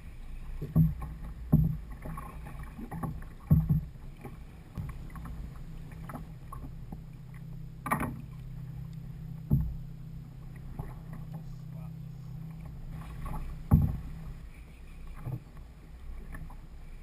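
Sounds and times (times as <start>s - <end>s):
steady low hum: 0.0s - 17.0s
knocks against kayak hull: 0.6s - 1.8s, 2.9s - 3.9s, 13.3s - 14.1s.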